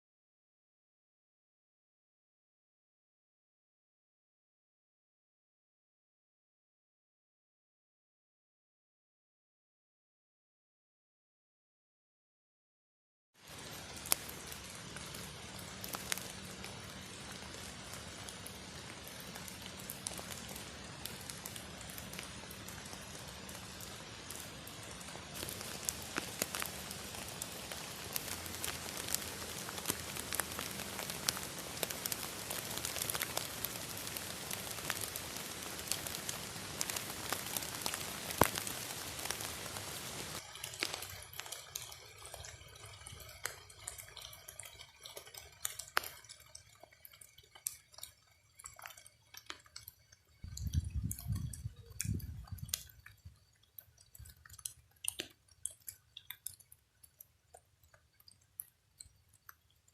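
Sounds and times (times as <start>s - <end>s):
rain falling: 13.4s - 59.9s
water dripping: 13.4s - 59.9s.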